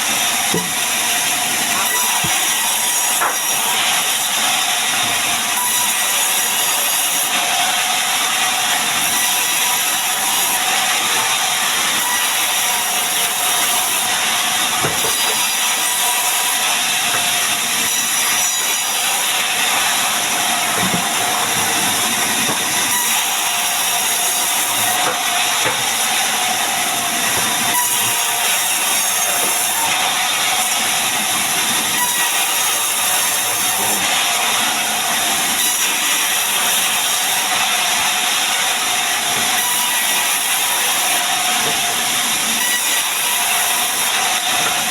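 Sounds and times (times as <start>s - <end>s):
sawmill machinery cutting timber: 0.0s - 44.9s.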